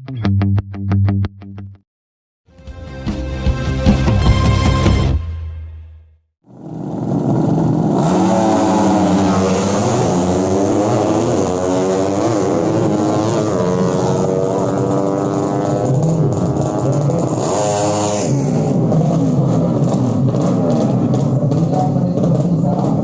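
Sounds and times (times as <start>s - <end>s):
music: 0.0s - 1.8s, 2.5s - 6.2s
motorcycles revving hard: 6.5s - 23.0s.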